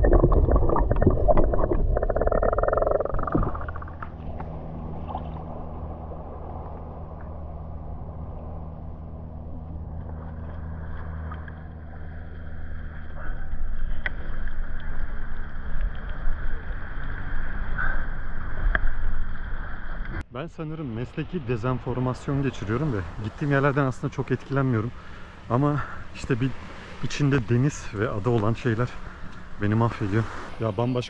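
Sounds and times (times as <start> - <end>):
rushing water: 0.0 - 7.4, 20.9 - 31.0
boat engine running: 0.0 - 20.1, 21.4 - 31.0
wind: 0.0 - 31.0.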